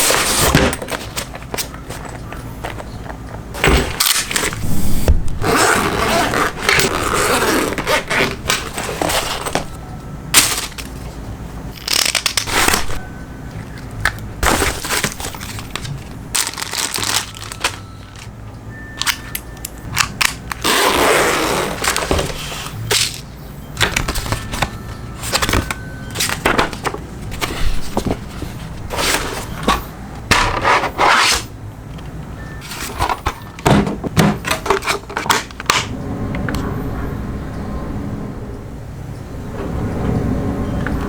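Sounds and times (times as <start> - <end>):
packaging crackling and rustling: 10.4 - 11.1, 13.6 - 18.3, 19.0 - 31.4.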